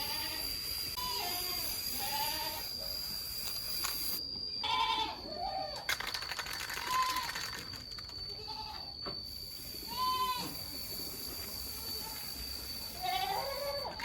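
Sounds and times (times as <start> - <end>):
high-pitched whine: 0.0 - 14.0
bleat-like animal calls: 4.6 - 5.8.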